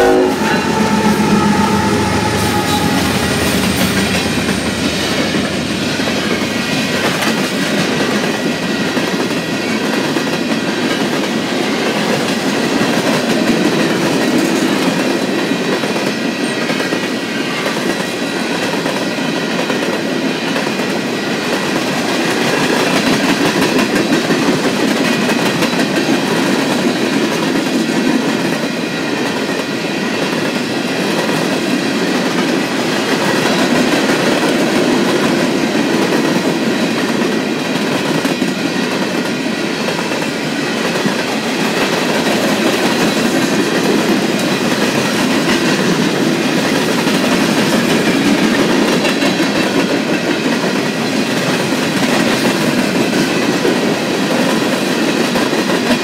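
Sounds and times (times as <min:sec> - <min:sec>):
faint high ringing: 0:00.0 - 0:06.1
train wheels clacking over rail joints: 0:00.0 - 0:56.0.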